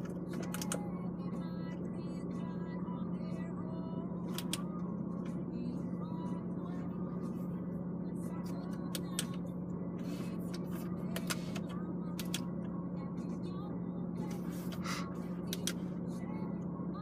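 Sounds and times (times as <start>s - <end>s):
low cabin hum: 0.0s - 17.0s
control knob clicks: 4.3s - 4.6s, 11.1s - 12.5s, 15.5s - 15.8s.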